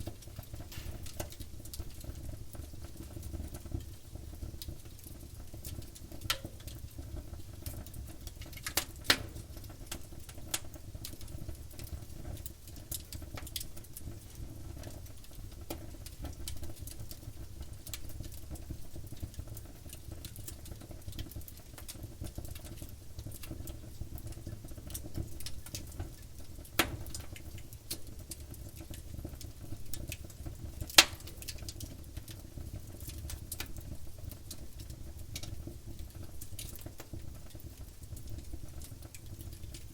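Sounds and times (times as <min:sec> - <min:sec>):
sharp pops of burning wood: 0:00.0 - 0:03.6, 0:08.1 - 0:14.4, 0:24.2 - 0:33.8
campfire crackling: 0:00.0 - 0:17.2, 0:19.9 - 0:39.9
low rumble of flames: 0:00.0 - 0:39.9.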